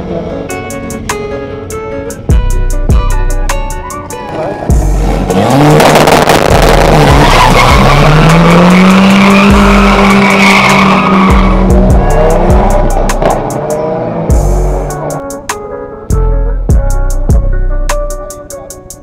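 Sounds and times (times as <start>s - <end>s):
background music with steady beat: 0.5s - 19.0s
car engine revving: 4.2s - 15.5s.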